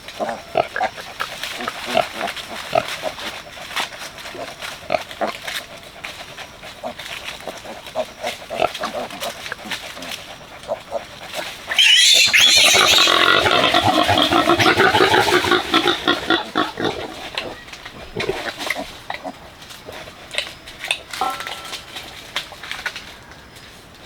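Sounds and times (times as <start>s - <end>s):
pig squealing loudly: 11.4s - 17.6s.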